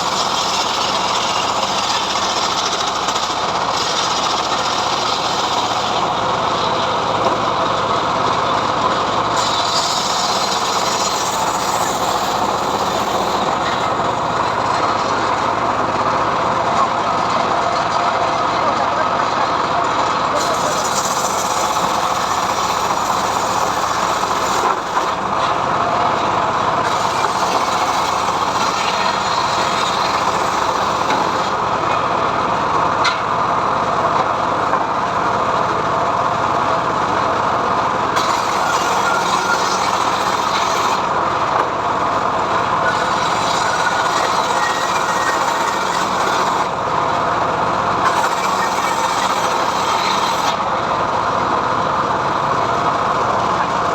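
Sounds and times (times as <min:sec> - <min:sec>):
sawmill blade ripping wood: 0:00.0 - 0:07.4, 0:09.3 - 0:15.7, 0:20.3 - 0:32.0, 0:38.1 - 0:46.9, 0:48.0 - 0:51.3.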